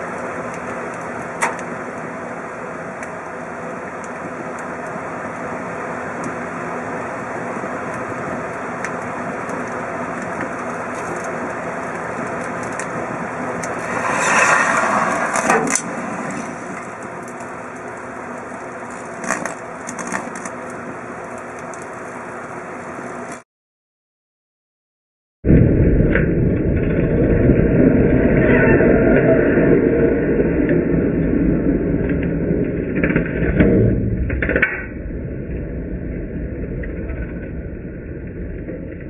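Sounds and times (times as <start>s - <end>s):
phone crackling and popping: 19.0s - 20.6s, 32.0s - 35.0s.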